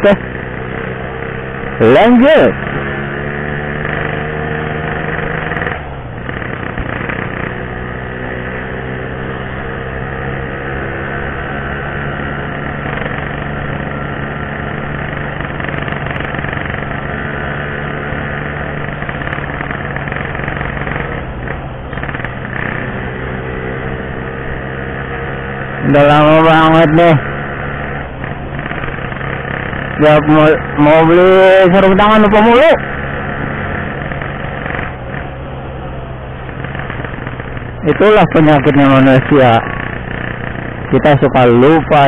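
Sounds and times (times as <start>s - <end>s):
two-stroke motorcycle engine: 0.0s - 42.0s.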